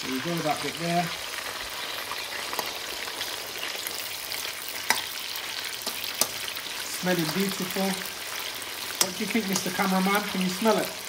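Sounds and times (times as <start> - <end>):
chicken sizzling in oil: 0.0 - 11.0
metal spoon stirring: 4.7 - 6.8.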